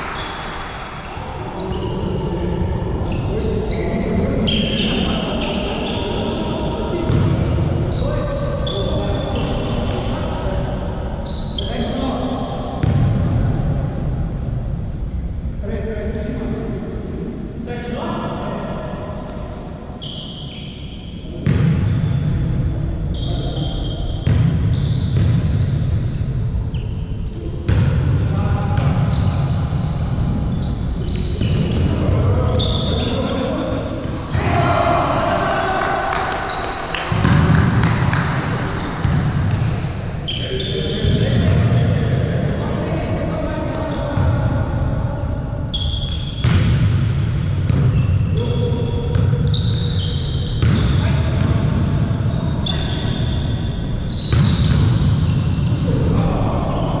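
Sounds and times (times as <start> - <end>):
sneaker squeaks on court: 0.0 - 2.0, 11.2 - 11.9, 23.1 - 25.8, 26.7 - 31.9, 32.5 - 34.4, 39.0 - 42.1, 45.3 - 46.9, 47.7 - 55.8.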